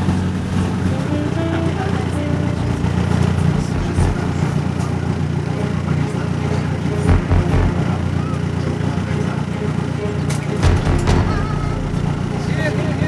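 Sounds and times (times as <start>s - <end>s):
motorboat engine rumbling: 0.0s - 13.0s
heavy low thumps: 3.3s - 4.6s, 7.1s - 8.2s, 10.6s - 13.0s.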